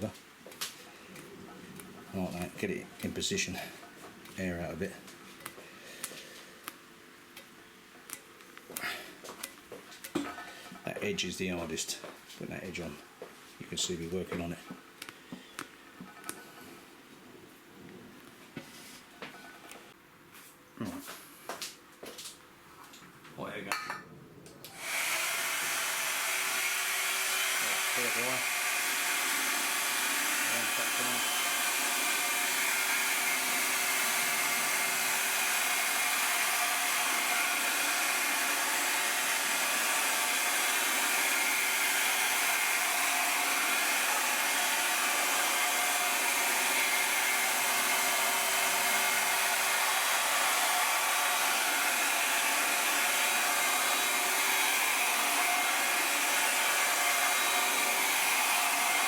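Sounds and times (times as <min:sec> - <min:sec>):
heat gun whirring: 0:24.7 - 0:59.0.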